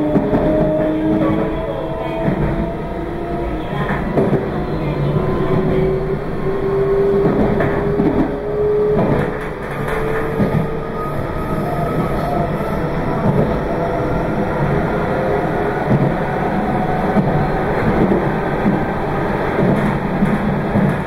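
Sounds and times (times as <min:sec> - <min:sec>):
train running noise: 0:00.0 - 0:21.0.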